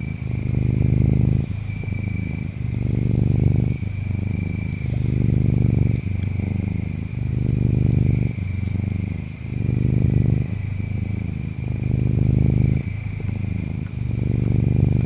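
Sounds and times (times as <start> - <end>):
cat purring: 0.0 - 15.0
insects chirping: 0.0 - 15.0.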